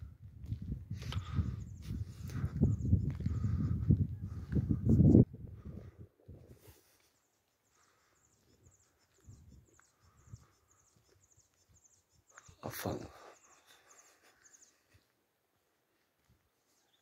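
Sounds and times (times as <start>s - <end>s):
small bird chirping: 7.0s - 15.1s.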